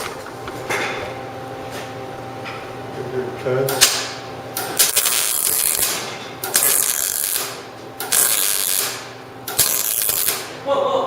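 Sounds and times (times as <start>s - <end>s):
welder crackling: 3.7s - 10.6s.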